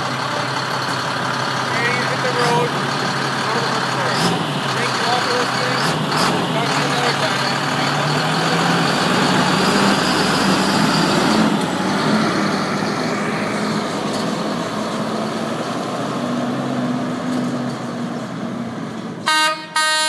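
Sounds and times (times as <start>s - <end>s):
truck engine running: 0.0s - 19.3s
road and tyre noise: 0.0s - 20.0s
truck horn blast: 19.2s - 20.0s.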